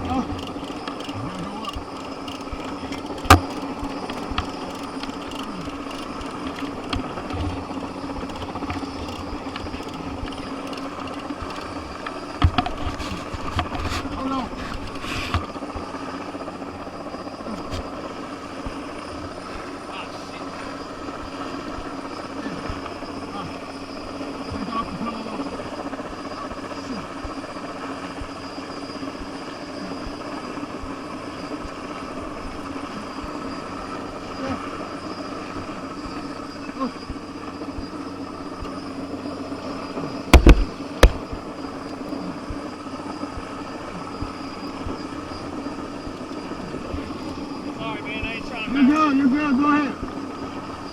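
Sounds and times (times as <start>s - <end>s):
helicopter rotor drone: 0.0s - 50.9s
sharp loud knocks: 40.3s - 41.4s.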